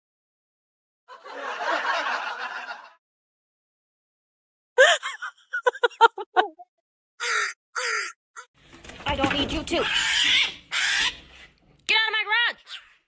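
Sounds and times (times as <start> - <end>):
harsh raspy noise: 7.2 - 8.5.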